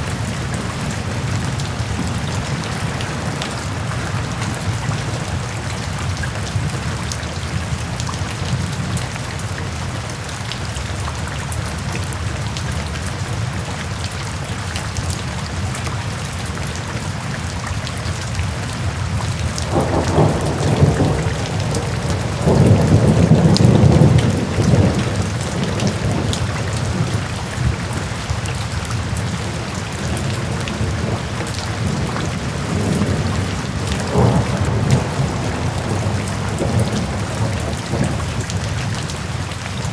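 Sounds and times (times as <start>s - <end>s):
steady rain: 0.0s - 39.9s
thunder rumbling: 19.4s - 28.4s, 29.0s - 39.5s.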